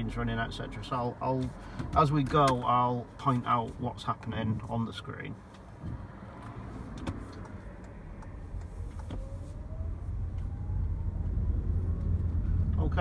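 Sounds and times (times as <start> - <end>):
engine and road rumble: 0.0 - 13.0
faint rising whine: 8.0 - 13.0.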